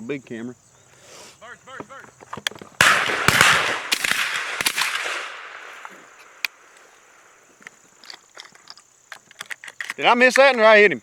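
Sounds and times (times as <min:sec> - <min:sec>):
shotgun shot with echo: 0:02.8 - 0:05.8.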